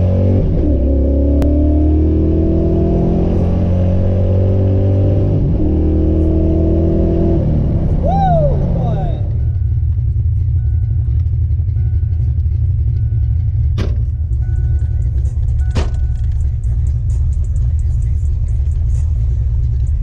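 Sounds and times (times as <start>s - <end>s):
car engine idling: 6.8s - 20.0s.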